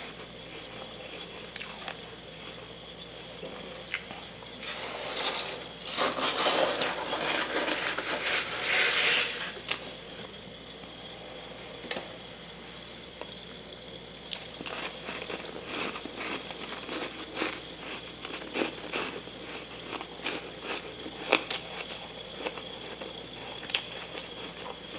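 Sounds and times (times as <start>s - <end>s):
faint high whine: 0.0s - 18.3s.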